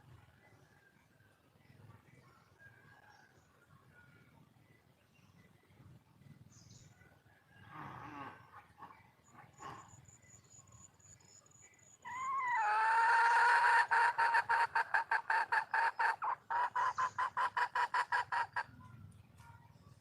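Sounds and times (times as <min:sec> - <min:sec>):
hen clucking: 0:12.1 - 0:18.8.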